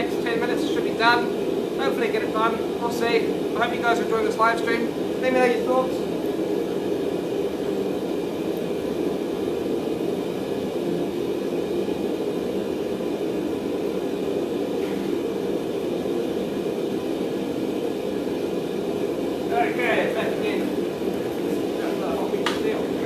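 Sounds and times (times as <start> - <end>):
gas burner roaring: 0.0 - 23.0.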